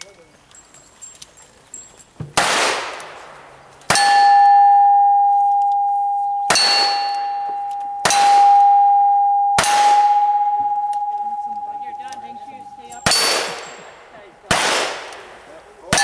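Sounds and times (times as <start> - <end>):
steel target ringing: 3.9 - 14.0
gunshots: 14.5 - 15.4.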